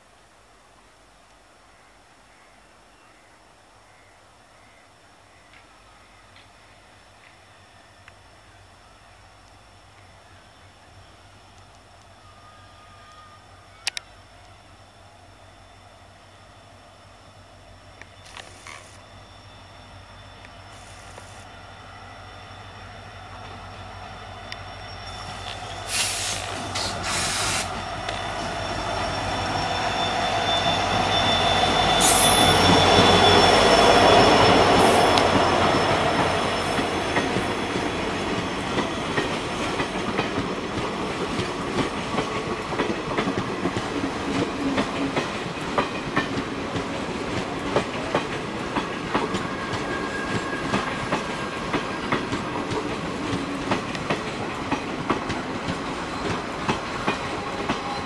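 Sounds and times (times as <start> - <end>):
diesel locomotive engine hum: 5.4 - 58.0
wheels clickety-clack over rail joints: 34.4 - 58.0.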